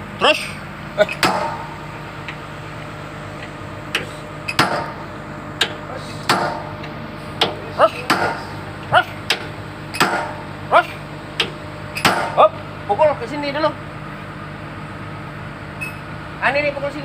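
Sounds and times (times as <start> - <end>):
excavator engine idling: 0.0 - 17.0
hammer striking steel: 1.0 - 1.9, 4.5 - 6.8, 7.4 - 10.5, 11.4 - 12.5.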